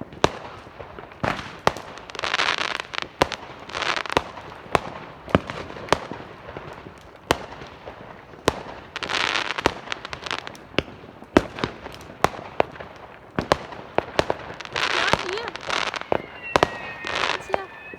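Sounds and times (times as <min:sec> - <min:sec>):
fireworks crackling burst: 0:00.0 - 0:17.9
firecracker bangs: 0:10.8 - 0:17.9.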